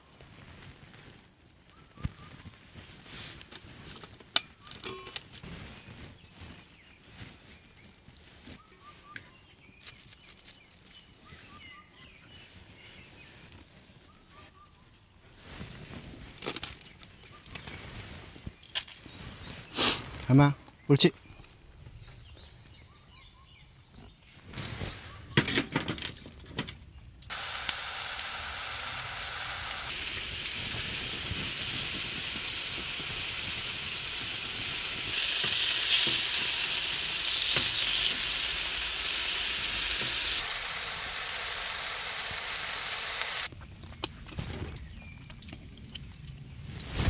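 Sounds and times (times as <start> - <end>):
food sizzling in a pan: 27.3 - 43.5.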